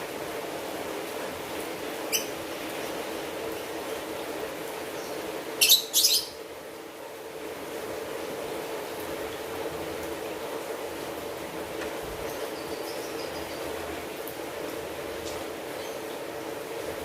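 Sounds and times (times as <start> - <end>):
steady rainfall: 0.0 - 17.0
bird chirping: 5.0 - 6.4, 12.3 - 13.7.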